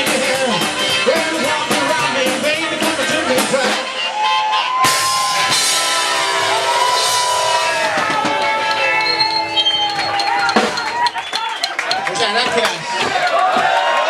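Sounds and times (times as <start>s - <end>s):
rock band playing loudly: 0.0s - 14.0s
lead instrument long bending notes: 5.4s - 11.1s.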